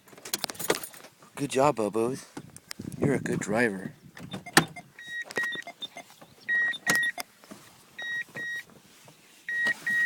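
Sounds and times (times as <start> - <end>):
truck warning chime beeping: 4.3 - 7.3, 8.0 - 8.7, 9.5 - 10.0.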